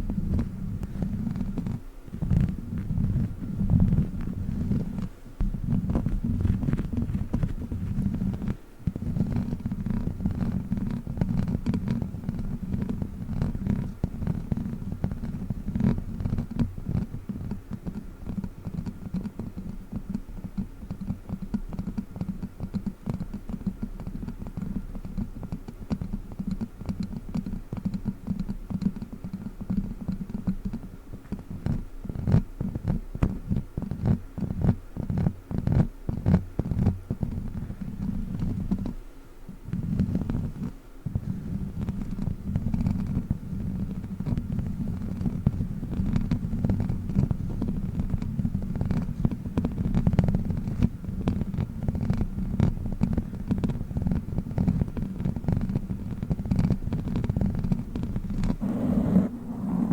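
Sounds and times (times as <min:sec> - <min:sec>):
props tapping and scratching: 0:00.0 - 0:39.0
low rumbling thumps: 0:58.6 - 0:59.9.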